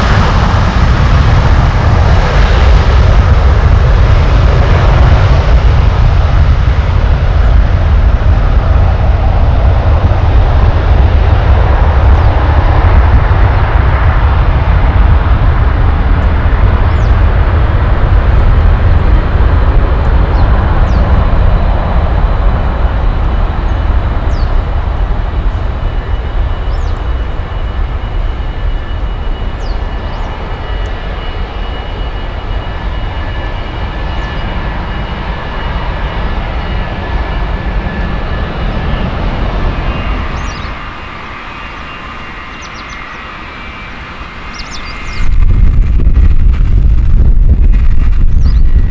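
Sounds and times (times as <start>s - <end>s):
high engine whine: 0.0s - 48.9s
jet airliner rumble: 0.0s - 48.9s.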